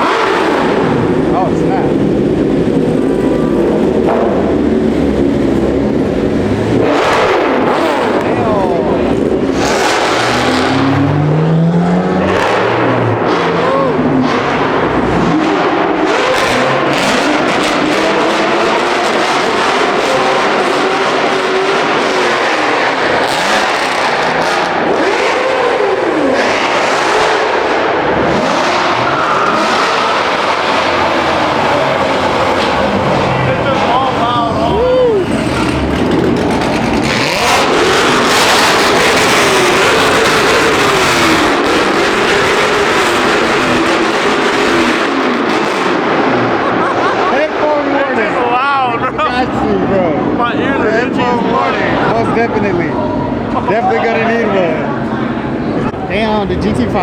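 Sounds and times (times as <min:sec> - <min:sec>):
vehicle engines revving: 0:00.0 - 0:57.0.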